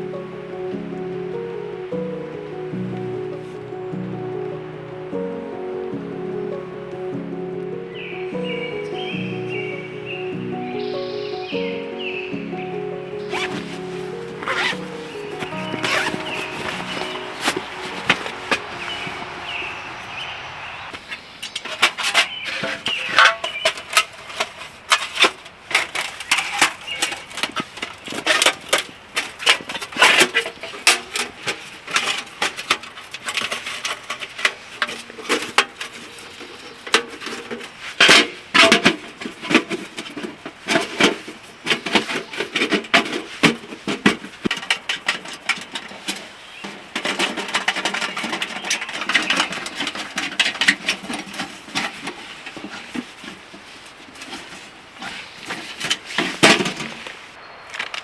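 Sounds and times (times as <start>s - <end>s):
metal stove parts clattering: 21.5s - 58.0s.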